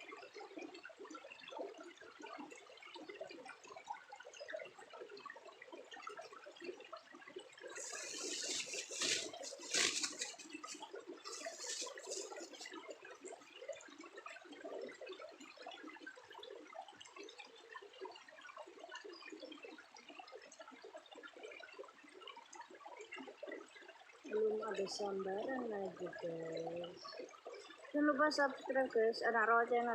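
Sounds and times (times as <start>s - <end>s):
water splashing and sloshing: 0.2s - 18.8s
water lapping: 7.7s - 15.1s.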